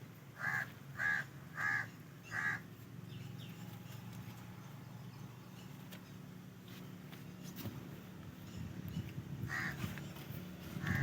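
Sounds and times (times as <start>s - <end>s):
crow cawing: 0.4s - 2.6s, 9.5s - 9.8s.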